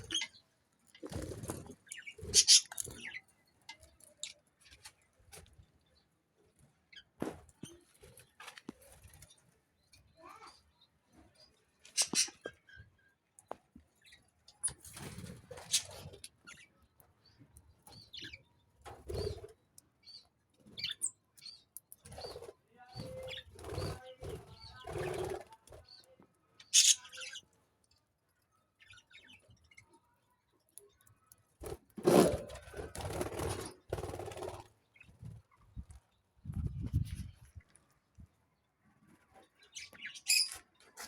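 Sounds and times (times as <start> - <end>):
parrots and budgies chirping: 0.0 - 0.4, 1.1 - 3.3, 11.9 - 12.9, 15.5 - 16.7, 25.9 - 27.4, 39.6 - 40.6
wing flutters: 31.6 - 35.2.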